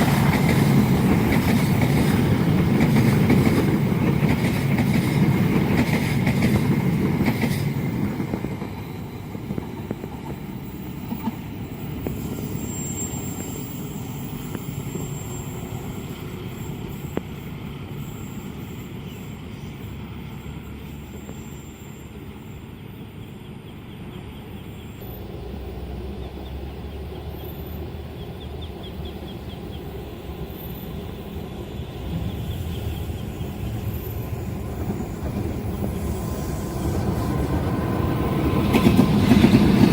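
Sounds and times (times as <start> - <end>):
train wheels clattering on rails: 0.0 - 21.6, 28.4 - 39.9
train rumble: 0.0 - 39.9.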